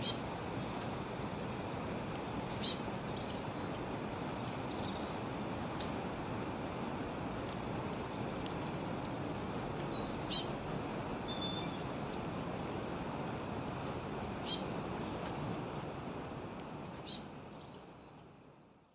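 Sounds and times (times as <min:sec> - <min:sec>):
small birds chirping: 0:00.0 - 0:01.1, 0:02.1 - 0:08.6, 0:09.8 - 0:12.9, 0:14.0 - 0:15.6, 0:16.6 - 0:18.9.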